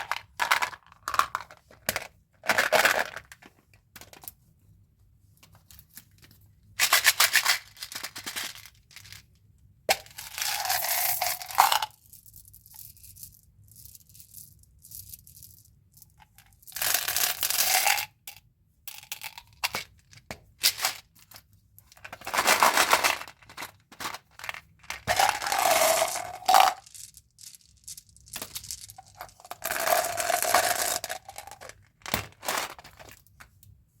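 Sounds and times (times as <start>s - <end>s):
candy packaging crinkling: 22.1s - 33.4s.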